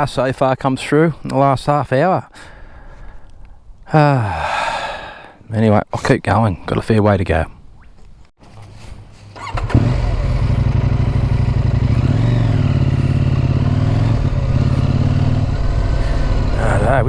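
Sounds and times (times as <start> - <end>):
motorcycle engine running: 9.3 - 17.0.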